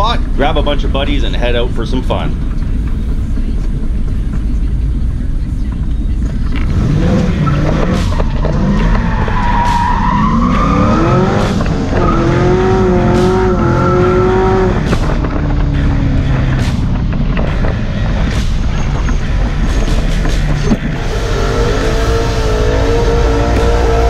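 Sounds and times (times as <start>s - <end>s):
car engine revving from inside: 10.5s - 16.7s, 20.9s - 24.0s.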